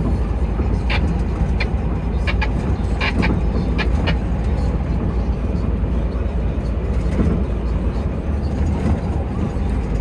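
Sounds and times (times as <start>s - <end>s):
truck engine and road rumble: 0.0s - 10.0s.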